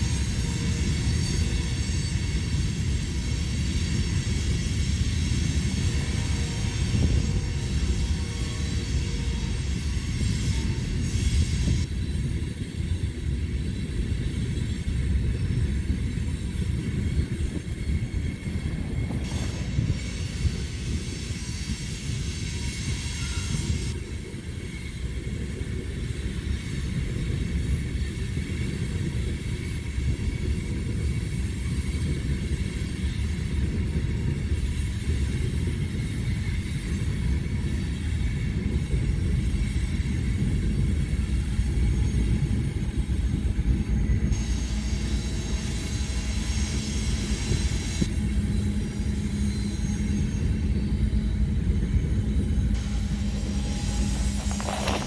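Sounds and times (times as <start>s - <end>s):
freight train wheels rumbling: 0.0s - 55.0s
high hiss: 52.7s - 55.0s.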